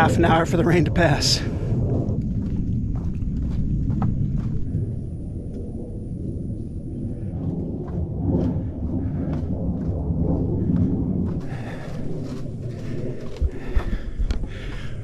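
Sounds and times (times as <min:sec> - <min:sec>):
low rumble: 0:00.0 - 0:15.0
footsteps on a trail: 0:01.9 - 0:05.1, 0:07.4 - 0:15.0.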